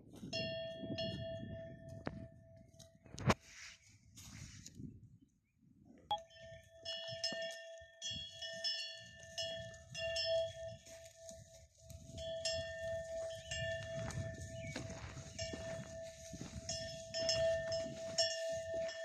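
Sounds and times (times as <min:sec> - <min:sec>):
metal animal bell clanking: 0:00.3 - 0:01.9, 0:06.1 - 0:19.0.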